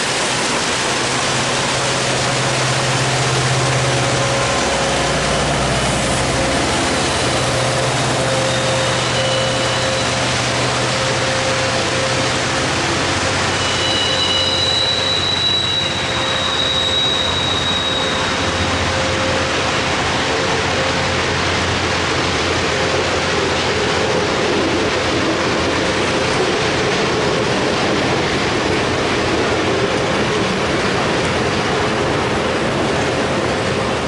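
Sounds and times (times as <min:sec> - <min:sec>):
train wheels on rail: 0:00.0 - 0:34.0
high wheel squeal: 0:03.5 - 0:19.7.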